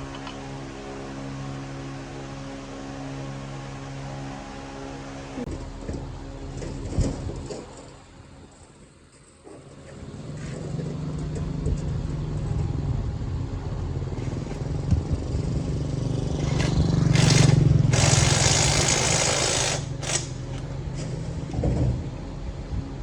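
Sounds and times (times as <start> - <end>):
motor humming: 11.2 - 20.7.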